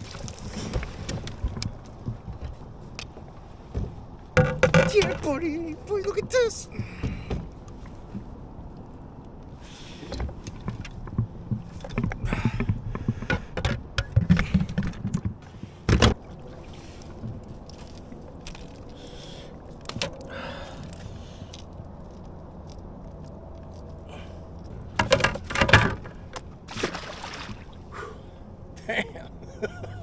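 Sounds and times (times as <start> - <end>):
knocks and scrapes in a kayak: 0.0 - 8.8, 9.5 - 19.2, 24.7 - 26.7.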